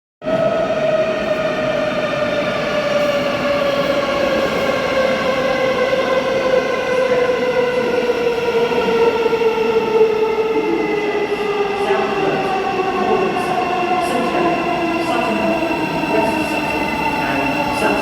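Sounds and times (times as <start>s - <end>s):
train running noise: 11.5s - 18.0s.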